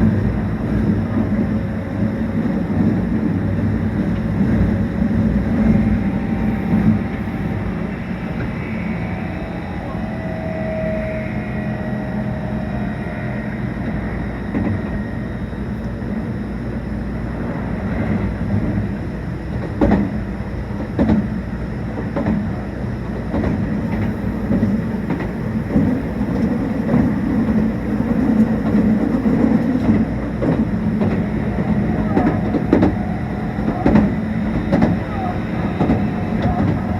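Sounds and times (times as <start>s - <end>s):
electric train rumbling: 0.0s - 36.9s
wheels clacking over rail joints: 23.8s - 36.9s.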